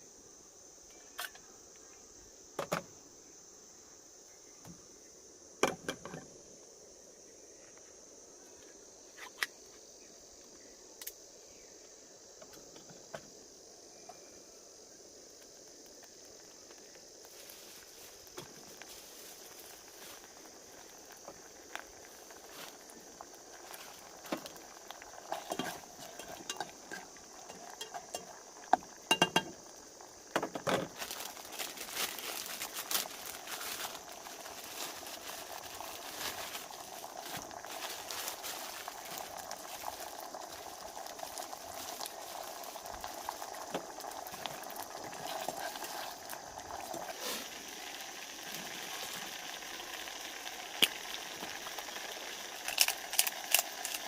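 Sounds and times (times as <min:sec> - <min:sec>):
food sizzling in a pan: 0:14.7 - 0:54.0.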